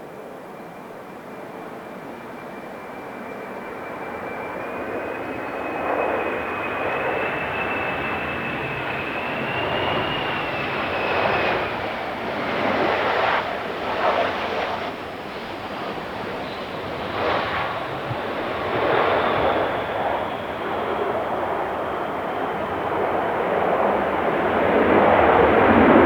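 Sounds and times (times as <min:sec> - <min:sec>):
jet engines rushing: 0:00.1 - 0:26.0.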